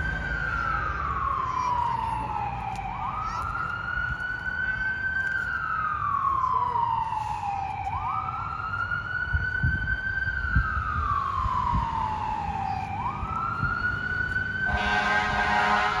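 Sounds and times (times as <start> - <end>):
fire engine siren wailing: 0.0 - 16.0
truck engine rumble: 0.0 - 16.0
air horn blast: 14.7 - 16.0.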